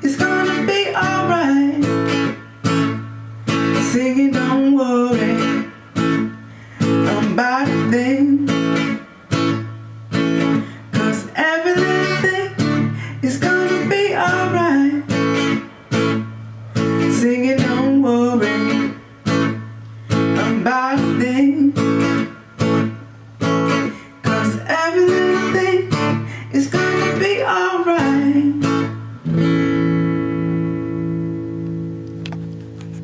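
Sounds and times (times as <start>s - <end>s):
person singing: 0.0s - 2.4s, 3.6s - 5.8s, 6.8s - 9.0s, 10.4s - 15.7s, 16.9s - 19.0s, 20.2s - 22.3s, 23.8s - 29.1s
acoustic guitar strumming: 0.0s - 33.0s.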